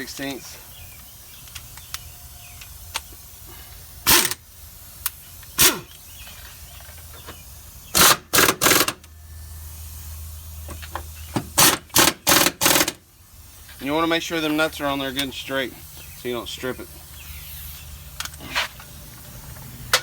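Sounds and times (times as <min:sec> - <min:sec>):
impact wrench bursts: 0:02.5 - 0:09.1, 0:10.7 - 0:20.0.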